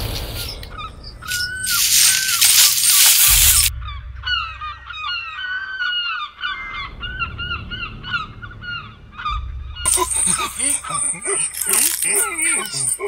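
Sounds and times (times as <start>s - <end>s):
flock of birds calling: 0.0s - 3.7s, 4.3s - 13.0s
low rumble: 0.0s - 12.0s
loud hiss: 1.3s - 3.7s.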